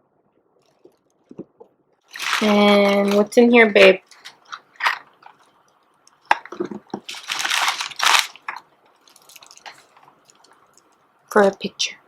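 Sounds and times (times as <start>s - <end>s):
paper rustling: 2.1s - 3.3s, 7.0s - 10.1s.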